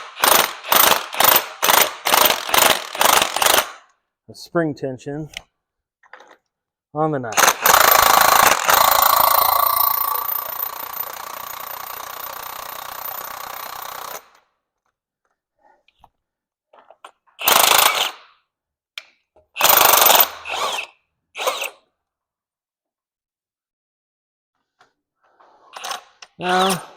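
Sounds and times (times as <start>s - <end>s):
impact wrench hammering whirr: 0.0s - 3.8s, 7.4s - 14.4s, 19.6s - 21.8s.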